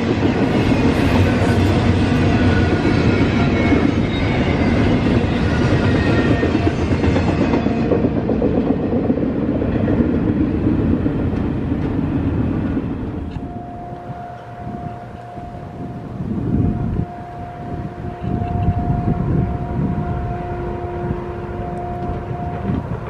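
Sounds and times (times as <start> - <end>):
freight train rumble and clatter: 0.0 - 23.0
steady single tone: 13.3 - 16.0.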